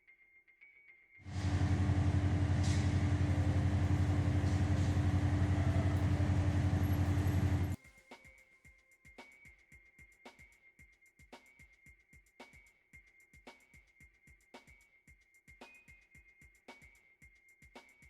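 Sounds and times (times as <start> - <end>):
heavy engine running: 1.3 - 7.8.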